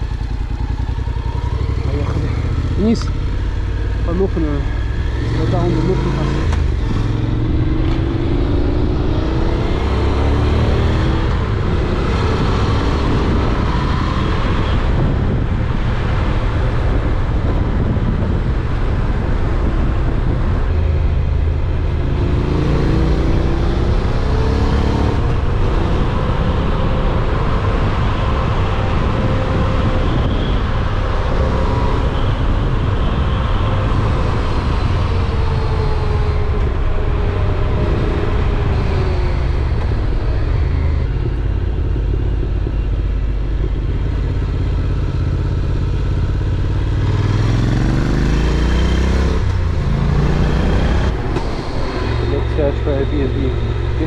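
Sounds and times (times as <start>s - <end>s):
motorcycle engine running: 0.0s - 10.2s, 38.3s - 54.0s
heavy rush of noise: 1.6s - 54.0s.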